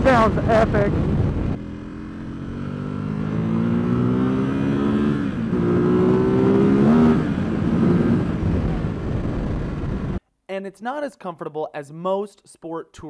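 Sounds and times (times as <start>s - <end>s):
motorcycle engine accelerating hard: 0.0s - 10.2s.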